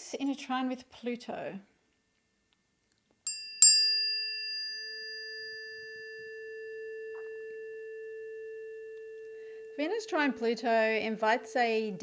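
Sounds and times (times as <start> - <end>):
tuning forks ringing: 3.3 - 12.0.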